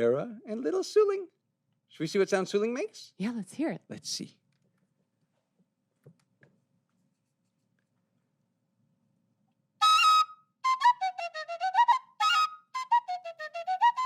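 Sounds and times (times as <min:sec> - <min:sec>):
bamboo flute playing: 0:09.8 - 0:14.0.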